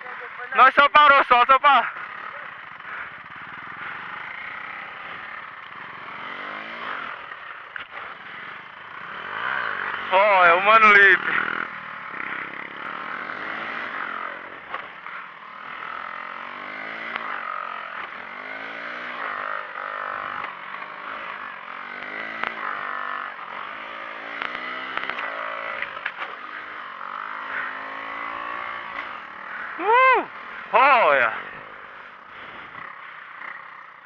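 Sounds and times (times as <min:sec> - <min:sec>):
small motorcycle engine revving: 0:00.0 - 0:34.0
sharp clicks: 0:24.4 - 0:26.4.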